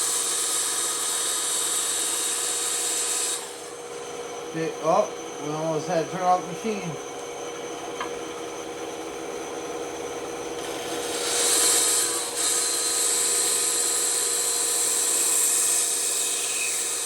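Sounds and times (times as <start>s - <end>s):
bandsaw cutting wood: 0.0s - 7.0s, 10.6s - 17.0s.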